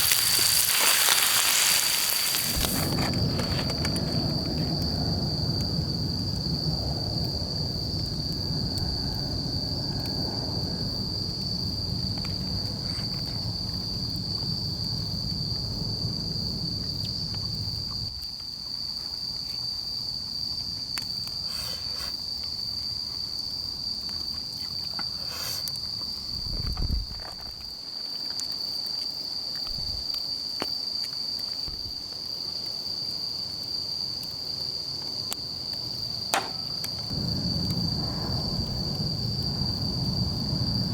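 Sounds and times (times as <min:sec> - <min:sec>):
low rumbling noise: 0:00.0 - 0:18.0, 0:36.4 - 0:40.9
insects chirring: 0:00.0 - 0:40.9
dull thump: 0:36.3 - 0:37.2.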